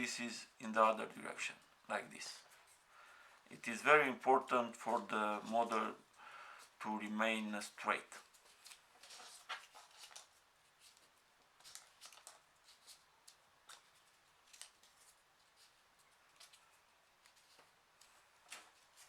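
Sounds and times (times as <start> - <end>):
paper rustling: 4.6 - 6.0, 6.6 - 19.0
crisp paper clicks: 8.3 - 19.0.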